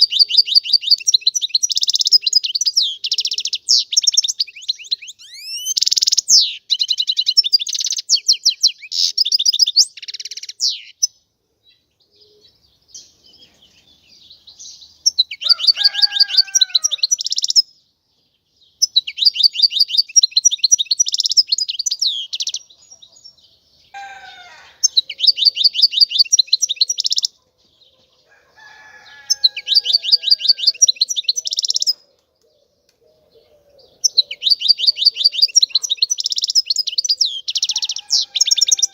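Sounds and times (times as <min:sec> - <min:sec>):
bird twittering trills: 0:00.0 - 0:17.9, 0:18.6 - 0:32.7, 0:33.3 - 0:38.9
faint lower bird calls: 0:00.0 - 0:38.9.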